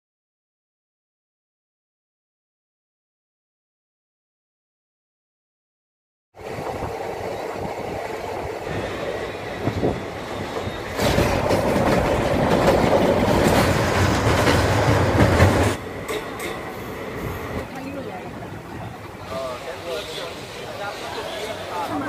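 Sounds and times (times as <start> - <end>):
rushing air: 6.4 - 21.8
train wheels rumbling on rails: 6.4 - 22.0.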